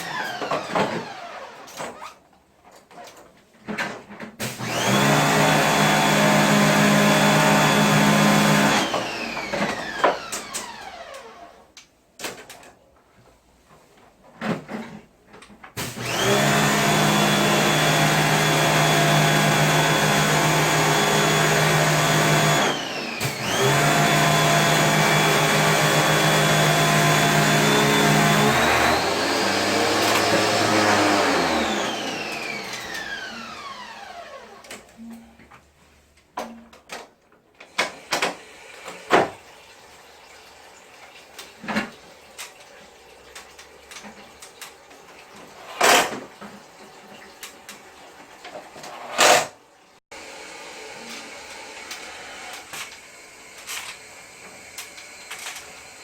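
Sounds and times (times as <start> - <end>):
vacuum cleaner motor whining: 0.0 - 2.0, 4.4 - 11.6, 15.8 - 35.2, 50.2 - 56.0.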